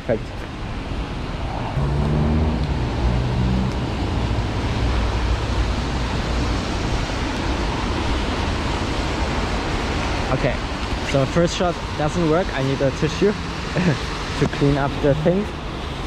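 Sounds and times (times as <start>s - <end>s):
vehicle engine low hum: 1.6s - 10.2s.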